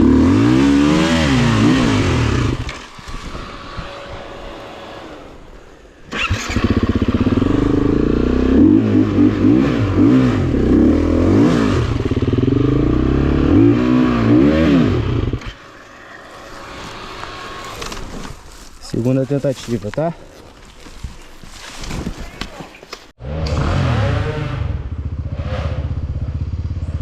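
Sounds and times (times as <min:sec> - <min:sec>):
off-road motorcycle engine revving: 0:00.0 - 0:15.7, 0:23.2 - 0:27.0.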